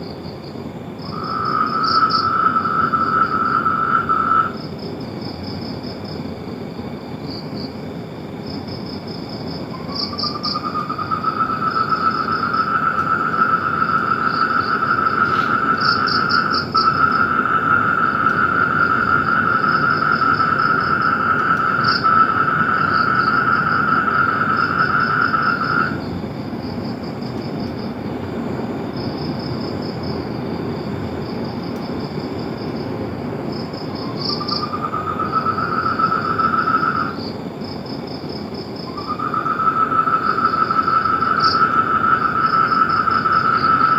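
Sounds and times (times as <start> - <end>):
long steady frog trill: 1.0 - 4.7, 9.7 - 26.1, 33.5 - 37.3, 38.8 - 43.9.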